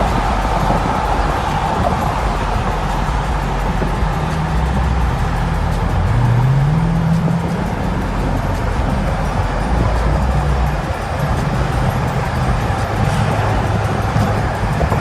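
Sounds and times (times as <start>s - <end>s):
car engine and road noise: 0.0s - 15.0s
low rising tone: 0.0s - 15.0s
music playing: 0.0s - 15.0s.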